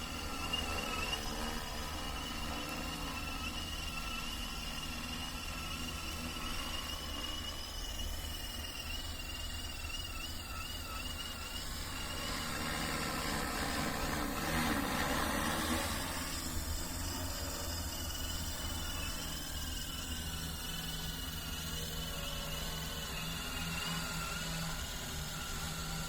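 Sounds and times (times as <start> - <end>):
drone rotors humming: 0.0 - 26.0
high insect-like trill: 0.0 - 26.0.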